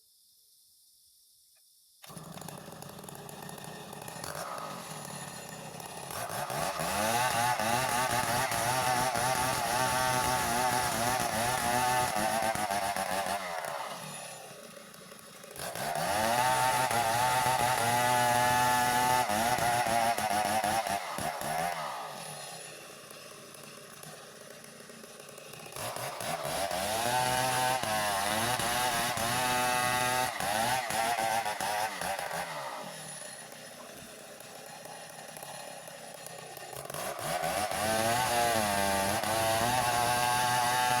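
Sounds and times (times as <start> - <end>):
chainsaw cutting wood: 2.0 - 41.0.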